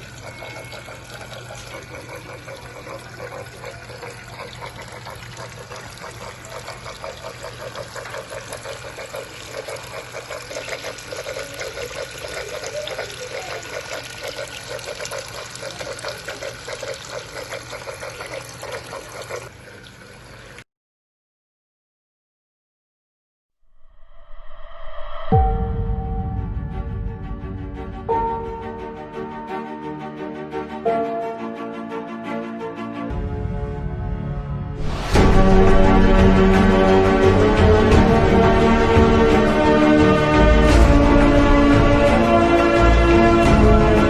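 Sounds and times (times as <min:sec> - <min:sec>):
water trickling in fountain: 0:00.0 - 0:20.6
low hum: 0:23.6 - 0:28.8.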